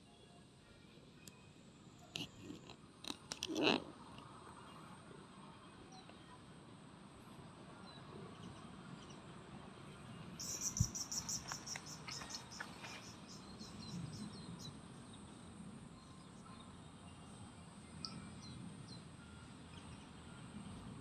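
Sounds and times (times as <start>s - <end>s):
short bird chirps: 10.4s - 13.4s
insect chirping pulses: 10.4s - 14.3s.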